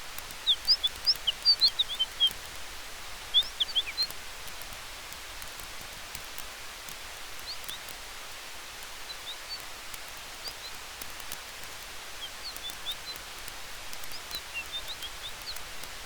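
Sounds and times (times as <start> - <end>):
campfire crackling: 0.0 - 16.0
forest wind hiss: 0.0 - 16.0.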